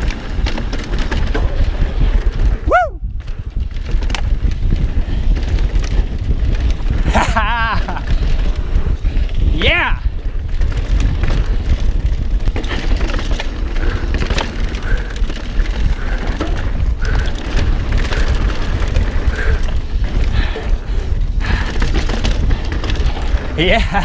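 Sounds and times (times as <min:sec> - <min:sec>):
bike clattering over rocks: 0:00.0 - 0:02.6, 0:09.6 - 0:24.0
wind on microphone: 0:00.0 - 0:24.0.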